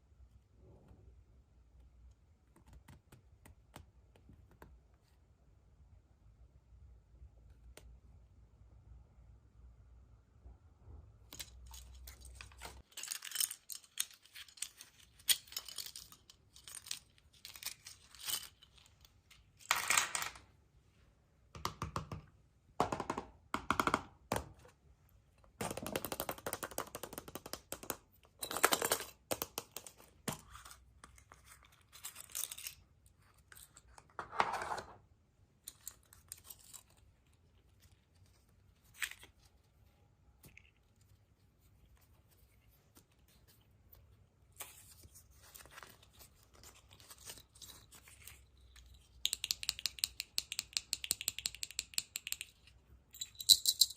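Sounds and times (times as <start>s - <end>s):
plastic capsules clicking: 49.2s - 53.9s.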